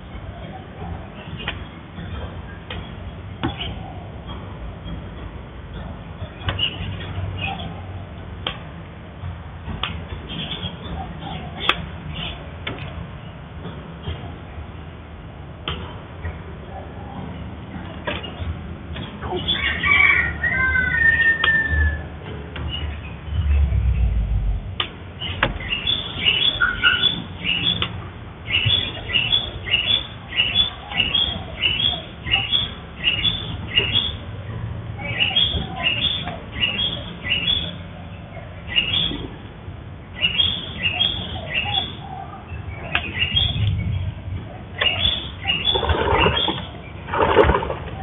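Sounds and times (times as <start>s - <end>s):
bird chirping: 22.7s - 27.8s, 44.8s - 47.0s.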